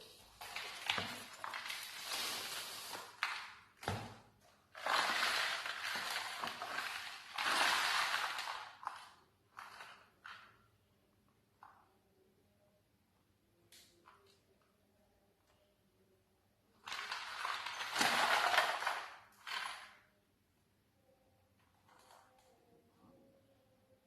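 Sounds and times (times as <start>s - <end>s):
packaging crinkling rustle: 0.2s - 3.6s.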